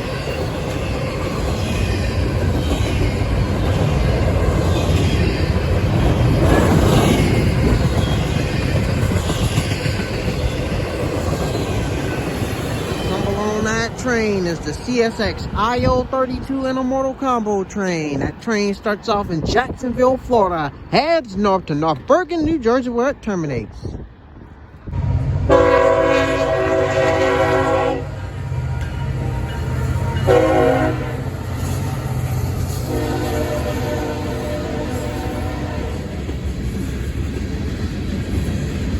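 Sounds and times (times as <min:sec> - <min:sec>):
train wheels rumbling on rail: 0:00.0 - 0:21.0, 0:23.9 - 0:38.9
locomotive air horn blasts: 0:25.4 - 0:31.4, 0:32.8 - 0:36.1.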